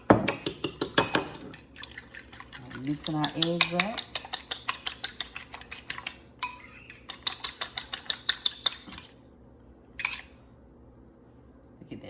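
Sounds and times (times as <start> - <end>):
utensil clicking against a bowl: 0.2 - 9.1.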